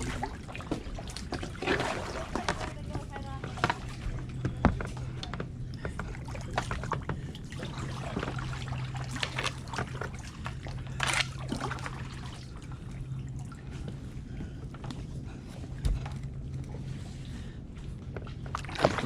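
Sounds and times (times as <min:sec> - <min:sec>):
paddle blades dipping in water: 0:00.0 - 0:19.0.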